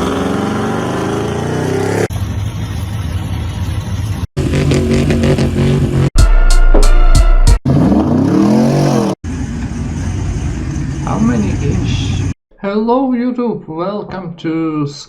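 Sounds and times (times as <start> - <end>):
truck engines revving: 0.0 - 6.2, 7.7 - 12.4.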